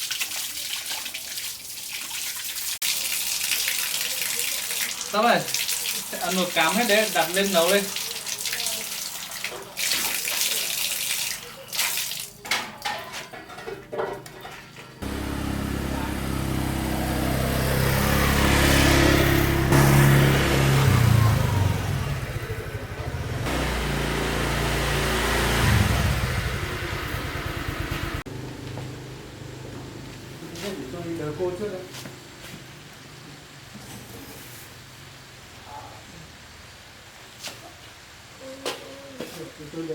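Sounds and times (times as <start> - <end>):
water splashing: 0.0 - 12.4
engine running: 15.0 - 30.6.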